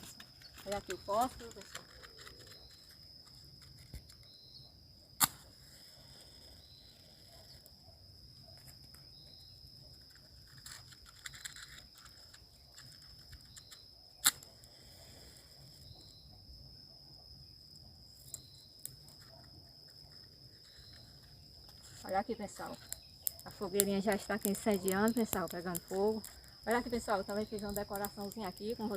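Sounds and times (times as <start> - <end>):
crickets chirring: 0.0 - 28.9
sharp loud clicks: 5.2 - 5.5.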